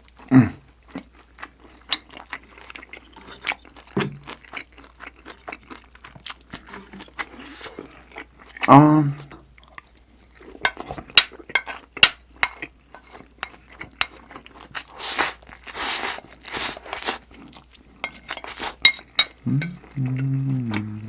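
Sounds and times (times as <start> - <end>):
crunchy chewing: 0.9 - 8.6, 12.6 - 21.0
person humming: 19.4 - 21.0.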